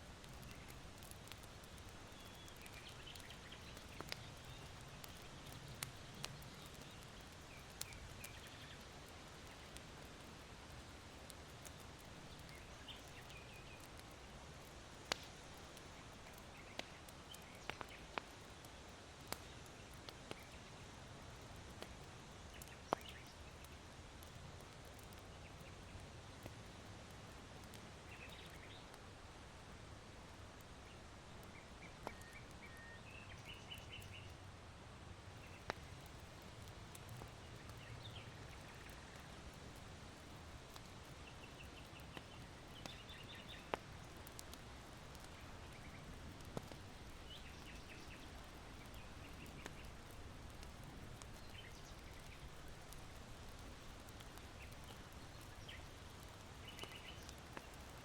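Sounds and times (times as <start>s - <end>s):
charcoal fire popping: 0.0s - 58.0s
small birds chirping: 0.1s - 29.0s, 30.2s - 34.5s, 35.3s - 58.0s.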